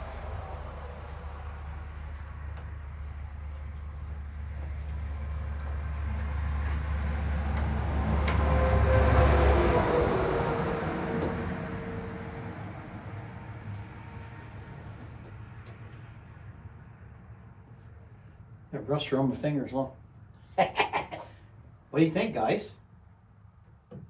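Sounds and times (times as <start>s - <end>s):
steady low hum: 0.0s - 8.4s
vehicle passing by: 0.0s - 17.0s.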